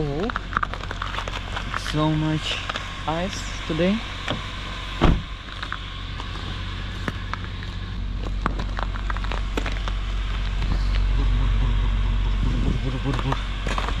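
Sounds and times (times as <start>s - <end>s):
footsteps on icy pavement: 0.0s - 3.4s, 4.6s - 11.2s, 12.8s - 14.0s
car engine idling: 0.0s - 14.0s.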